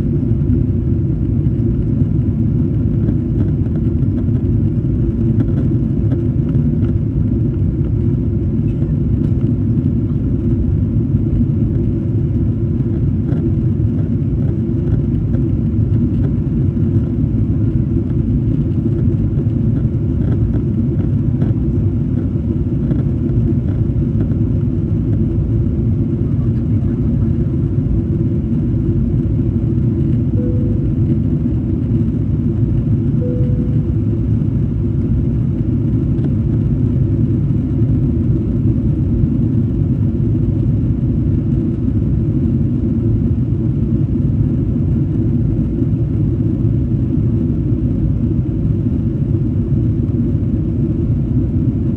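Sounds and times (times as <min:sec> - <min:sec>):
airliner cabin engine rumble: 0:00.0 - 0:51.9
short faint tones: 0:30.4 - 0:31.7, 0:33.2 - 0:34.4.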